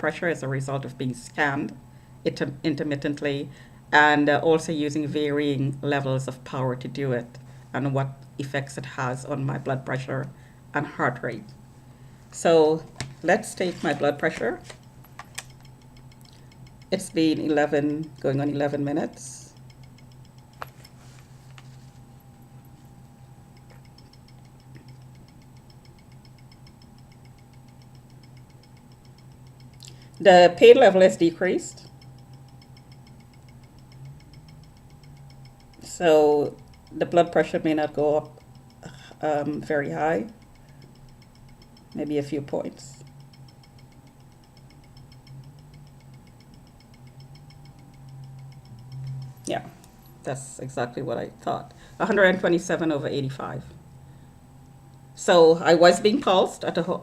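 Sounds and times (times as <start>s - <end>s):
faint motor hum: 0.0s - 57.0s
fast even ticking: 13.2s - 21.0s, 23.3s - 54.0s.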